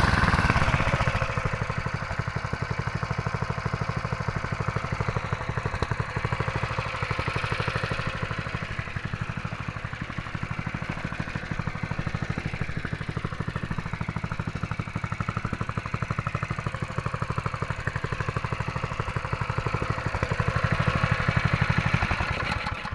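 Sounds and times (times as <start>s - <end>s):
small engine running steadily: 0.0s - 22.9s.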